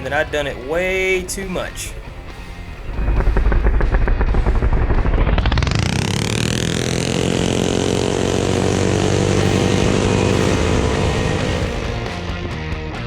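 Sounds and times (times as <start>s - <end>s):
mini bike engine revving: 2.1s - 12.2s.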